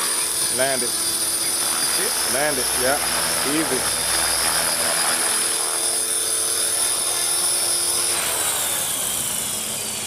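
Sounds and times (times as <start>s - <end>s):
helicopter rotor whining: 0.0s - 10.0s.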